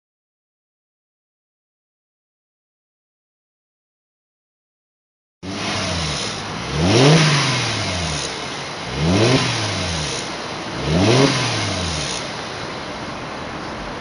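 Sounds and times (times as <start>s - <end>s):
car engine revving: 5.4s - 14.0s.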